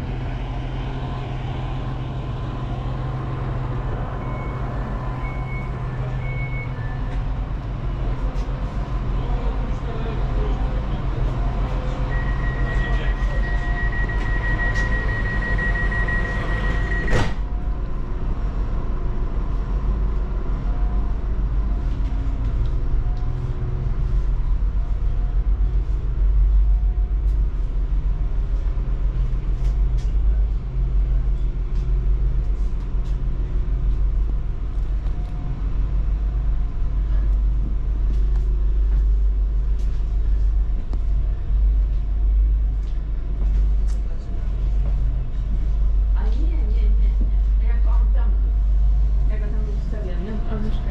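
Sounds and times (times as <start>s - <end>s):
train low rumble: 0.0s - 50.9s
door warning beep: 4.2s - 6.8s, 12.1s - 17.4s.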